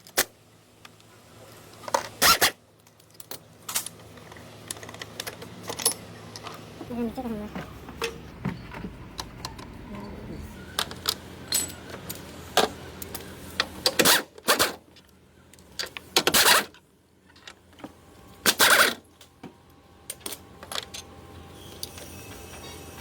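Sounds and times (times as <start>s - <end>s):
metal tools clinking: 5.7s - 6.5s, 10.8s - 11.9s.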